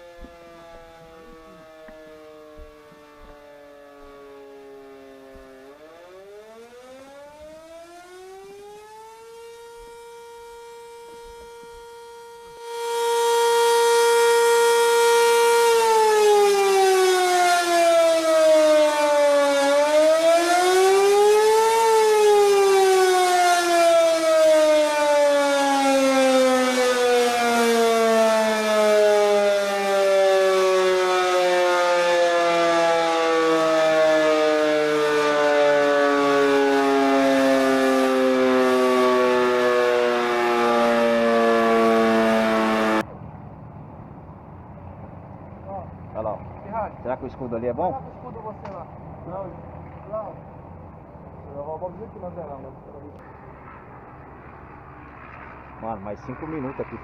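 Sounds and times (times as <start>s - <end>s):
air-raid siren wailing: 0.0s - 43.1s.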